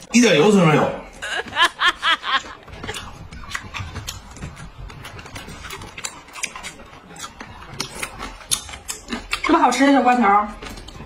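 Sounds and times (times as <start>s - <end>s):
chewing crunchy pickles: 2.5s - 11.0s.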